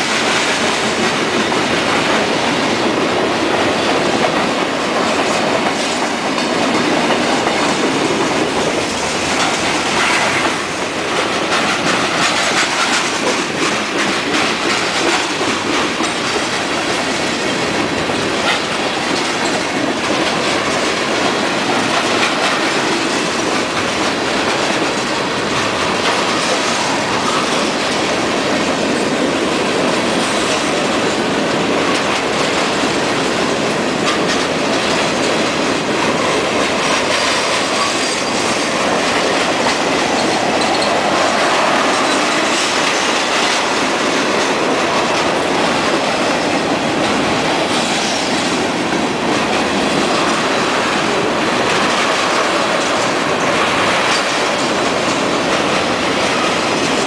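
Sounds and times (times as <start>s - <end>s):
clickety-clack of rail joints: 0.0s - 57.0s
freight train wheels rumbling: 0.0s - 57.0s.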